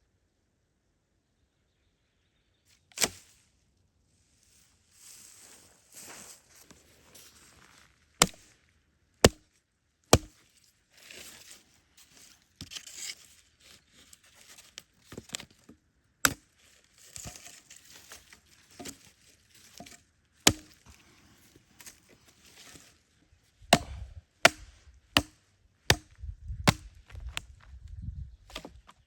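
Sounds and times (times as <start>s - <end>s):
sharp chopping strikes: 3.0s - 3.2s, 8.2s - 8.4s, 9.2s - 9.4s, 10.1s - 10.4s, 19.8s - 20.8s, 23.7s - 27.0s
crinkling and rustling: 10.4s - 15.8s.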